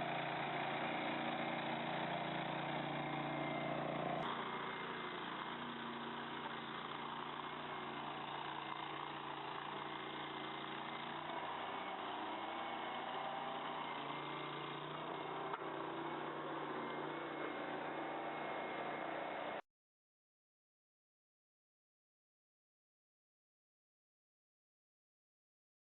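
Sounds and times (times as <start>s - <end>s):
loader engine running: 0.0s - 19.6s.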